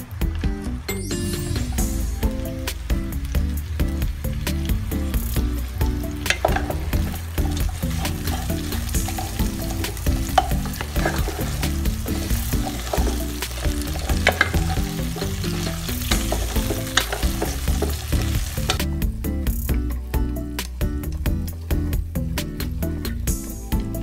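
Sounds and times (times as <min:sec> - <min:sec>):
meat sizzling in pot: 0:01.7 - 0:18.9
wooden spatula scraping pot: 0:06.3 - 0:18.8.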